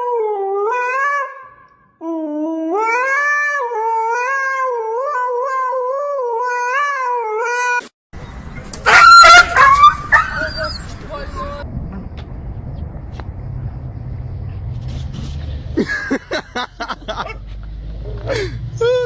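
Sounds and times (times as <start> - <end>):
pet howling: 8.9 - 11.6.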